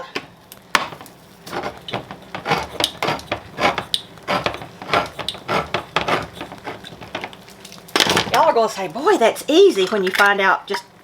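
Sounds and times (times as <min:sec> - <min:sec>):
utensil scraping metal can: 0:01.4 - 0:07.4.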